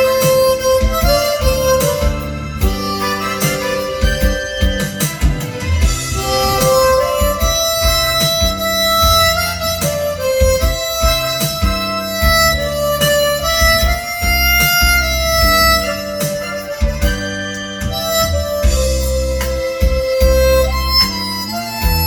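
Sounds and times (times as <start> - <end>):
backing track bass beat: 0.0 - 22.0
harmonica melody: 0.0 - 22.0.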